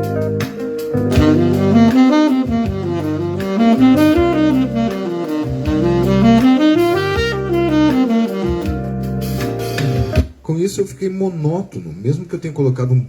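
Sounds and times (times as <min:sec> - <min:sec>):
backing track with bass: 0:01.0 - 0:10.0
saxophone playing scales: 0:01.1 - 0:08.9.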